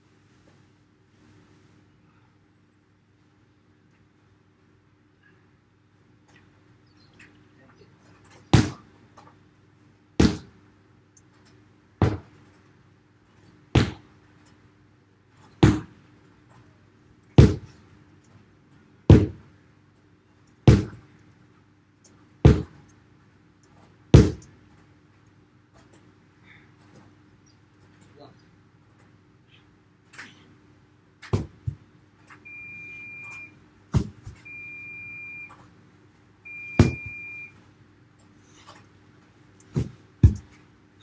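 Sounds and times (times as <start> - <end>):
sledgehammer thudding on tyre: 10.2 - 10.5, 12.0 - 12.3, 13.8 - 14.0, 15.6 - 15.9, 17.4 - 17.7, 19.1 - 19.4, 20.7 - 21.0, 22.5 - 22.8, 24.2 - 24.5, 31.3 - 31.8, 33.9 - 34.4, 36.8 - 37.2, 39.8 - 40.6.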